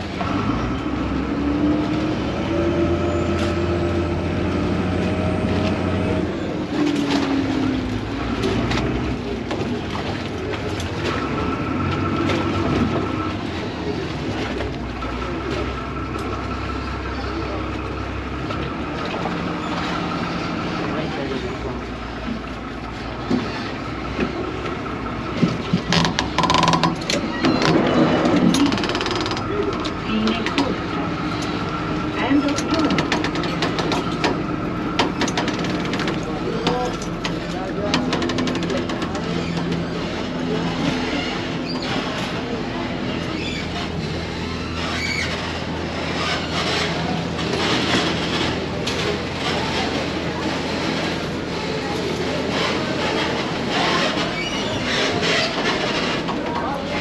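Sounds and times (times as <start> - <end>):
boat engine humming: 0.0 - 57.0.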